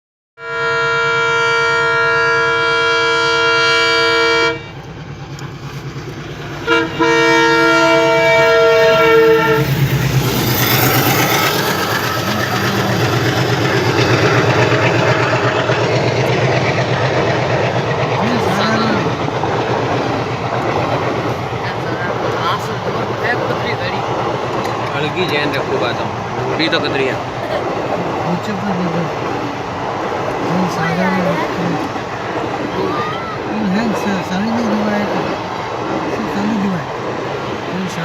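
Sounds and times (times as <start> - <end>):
train horn blasts: 0.4 - 4.8, 6.6 - 9.8
train passing with loud rumble: 0.4 - 38.0
wheels clattering over rail joints: 9.6 - 33.0.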